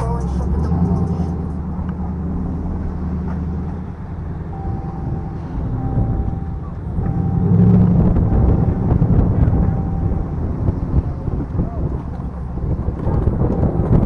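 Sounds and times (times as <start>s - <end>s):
car engine running: 0.0s - 14.0s
road rumble: 0.0s - 14.0s
short beeps: 4.5s - 10.7s.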